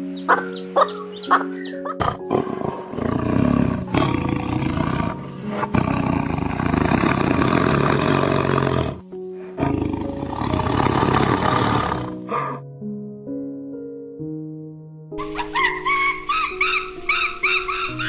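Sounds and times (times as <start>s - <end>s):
background music: 0.0s - 18.0s
tiger roaring: 1.3s - 9.0s, 9.6s - 12.6s.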